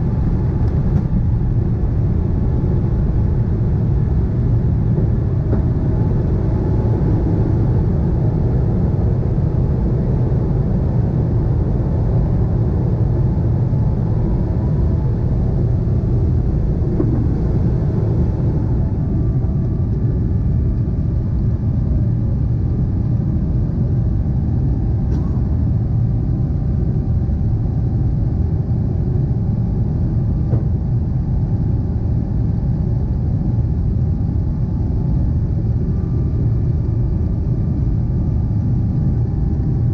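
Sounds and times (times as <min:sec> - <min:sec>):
jet engine rumble: 0:00.0 - 0:39.9.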